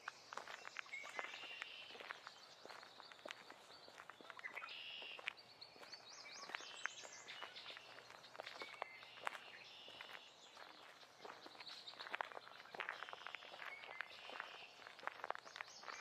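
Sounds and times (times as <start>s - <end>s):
birds singing and calling: 0.0s - 16.0s
footsteps on forest floor: 0.0s - 16.0s.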